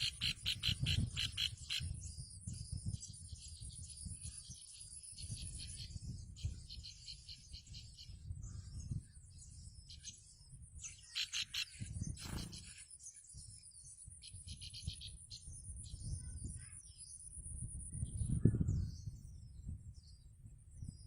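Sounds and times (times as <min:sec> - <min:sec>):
bird chattering trills: 0:00.0 - 0:02.0, 0:11.0 - 0:12.9.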